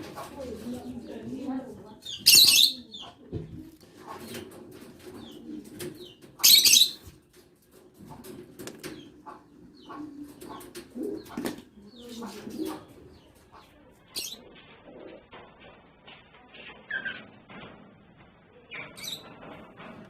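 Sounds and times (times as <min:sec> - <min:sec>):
birds calling: 0:00.0 - 0:14.5, 0:18.7 - 0:19.4
high bird chirps: 0:02.0 - 0:03.1, 0:06.4 - 0:07.1.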